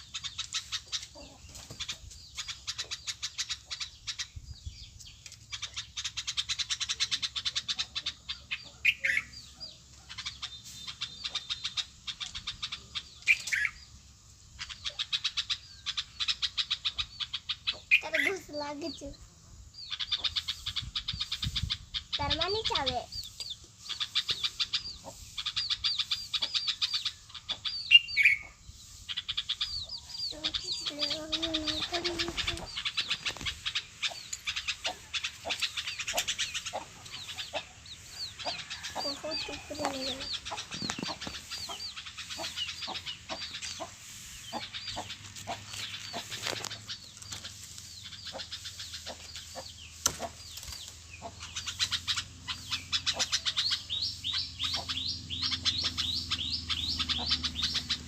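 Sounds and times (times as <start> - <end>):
small birds chirping: 0.0 - 58.0
lower longer bird calls: 51.1 - 58.0.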